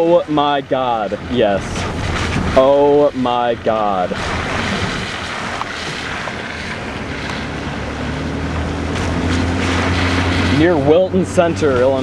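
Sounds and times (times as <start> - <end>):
vehicle engine hum: 0.0 - 12.0
wind on microphone: 1.1 - 3.0, 3.6 - 10.7.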